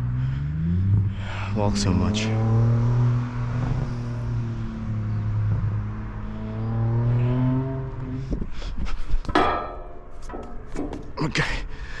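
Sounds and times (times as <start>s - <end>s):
vehicle engine accelerating: 0.0s - 8.6s
short knocks: 9.3s - 11.2s.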